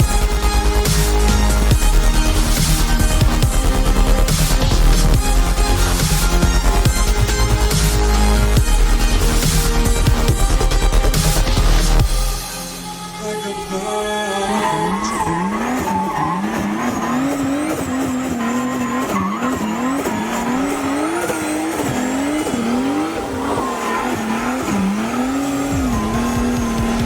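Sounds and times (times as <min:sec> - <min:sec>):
car engine revving: 0:00.0 - 0:27.0
tyres squealing: 0:12.7 - 0:27.0.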